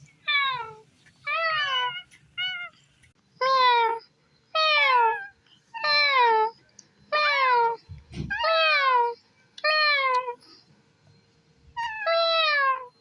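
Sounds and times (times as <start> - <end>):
cat meowing: 0.3 - 2.7, 7.2 - 10.4, 11.8 - 13.0.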